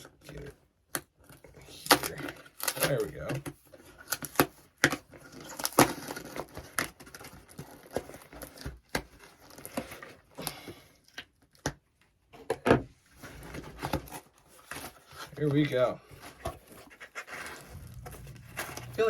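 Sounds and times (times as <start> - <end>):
packaging rustling and crinkling: 1.2 - 10.4, 13.1 - 19.0.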